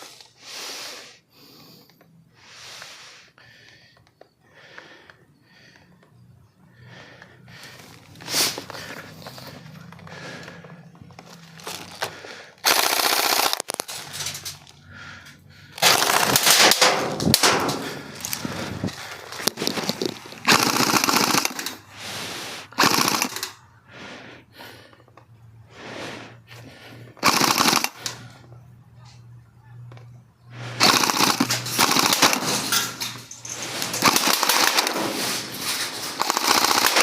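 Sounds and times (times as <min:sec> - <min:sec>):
airsoft rifles firing bursts: 0:12.6 - 0:14.4, 0:15.8 - 0:22.1, 0:22.8 - 0:23.6, 0:27.2 - 0:28.4, 0:30.6 - 0:37.0.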